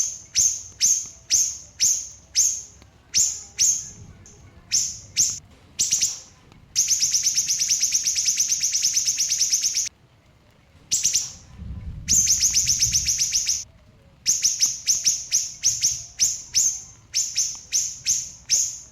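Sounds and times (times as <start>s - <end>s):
bird sharp chips: 0.0s - 9.9s, 14.3s - 18.9s
songbird trilling: 0.0s - 9.9s, 10.9s - 11.5s, 12.1s - 13.6s, 14.3s - 18.9s.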